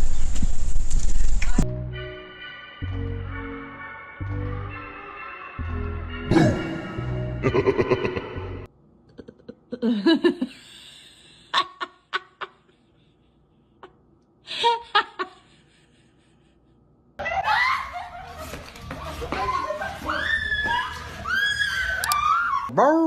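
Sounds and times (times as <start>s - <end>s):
person laughing: 7.4s - 16.6s, 17.2s - 18.7s.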